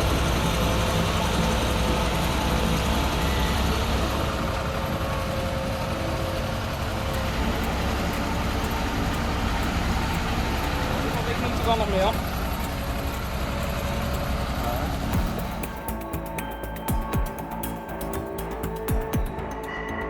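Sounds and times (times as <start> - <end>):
heavy vehicle engine running: 0.0 - 19.7.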